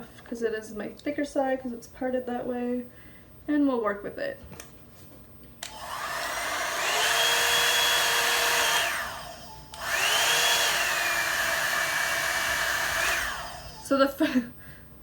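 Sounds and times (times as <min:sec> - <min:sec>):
hair dryer brush fan motor: 0:05.6 - 0:14.4.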